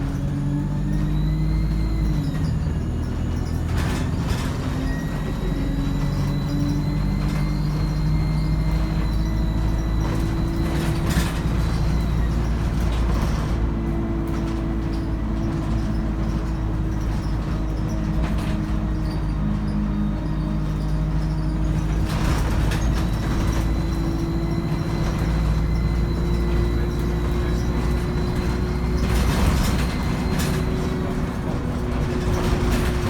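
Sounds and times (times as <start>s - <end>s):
bus diesel engine drone: 0.0s - 33.0s
knocks and rattles: 21.0s - 33.0s.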